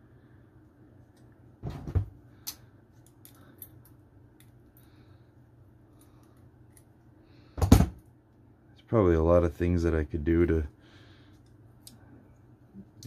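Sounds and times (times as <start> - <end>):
light clicks of metal parts: 2.4 - 5.0, 5.9 - 7.0.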